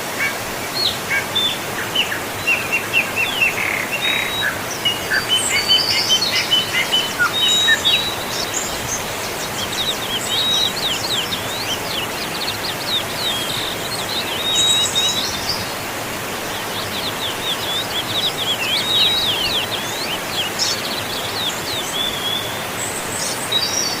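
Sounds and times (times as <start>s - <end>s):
waterfall rushing: 0.0s - 24.0s
birds chirping and whistling: 0.8s - 15.7s, 16.8s - 22.5s.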